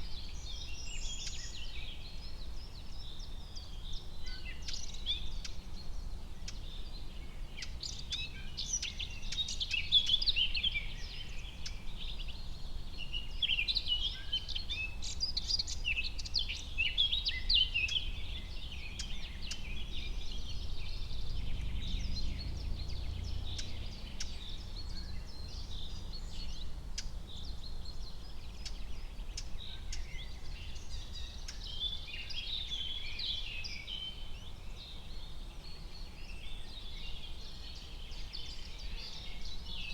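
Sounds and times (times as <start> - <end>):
small birds chirping and singing: 0.0 - 39.9
low steady rumble: 16.6 - 29.1.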